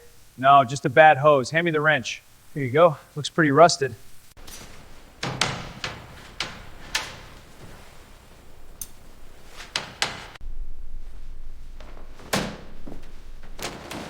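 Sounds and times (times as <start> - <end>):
hand tools knocking and clanking: 4.4 - 10.4
low rumble: 10.4 - 14.0.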